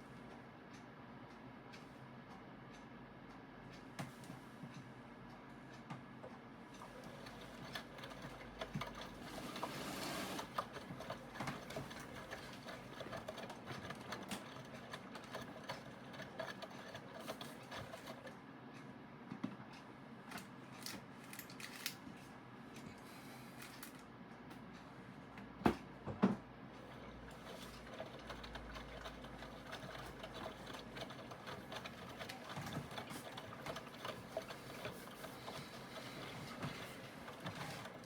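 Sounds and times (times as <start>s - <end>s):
washing machine motor running: 6.8s - 18.4s, 26.2s - 38.0s.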